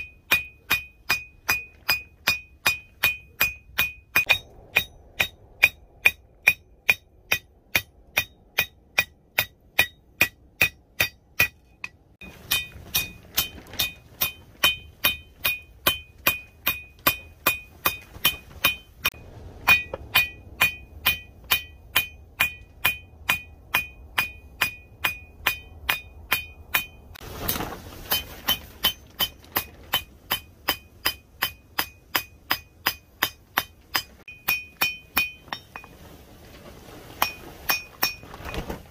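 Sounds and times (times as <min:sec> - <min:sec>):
hammer striking steel on anvil: 0:00.0 - 0:27.2, 0:28.1 - 0:35.9.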